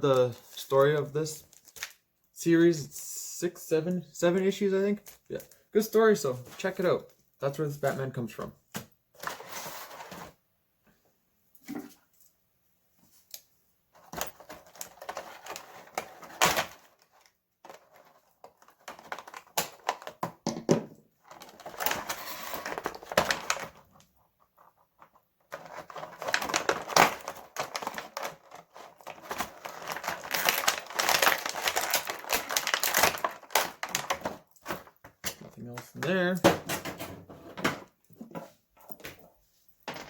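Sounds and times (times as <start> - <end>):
packaging rustling and crinkling: 1.4 - 2.0, 14.0 - 20.2, 21.2 - 35.2.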